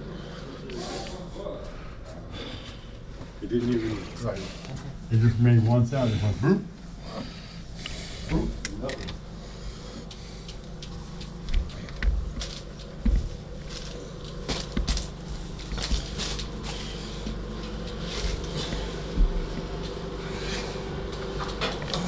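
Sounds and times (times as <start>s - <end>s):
steady low hum: 0.0s - 22.0s
objects being handled and moved: 10.0s - 22.0s.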